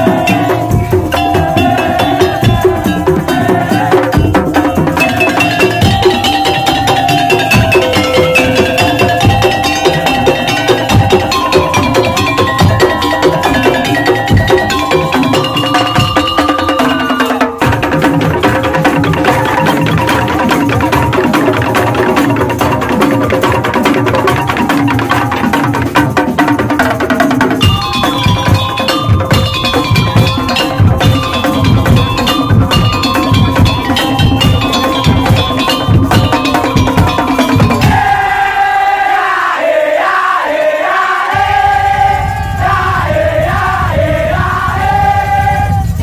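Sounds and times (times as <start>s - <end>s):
held melodic notes: 0.0s - 17.8s
wavering melodic tones: 0.0s - 26.0s, 27.5s - 38.6s
wooden slit drums and drums: 0.0s - 46.0s
bright struck tones: 4.6s - 17.8s.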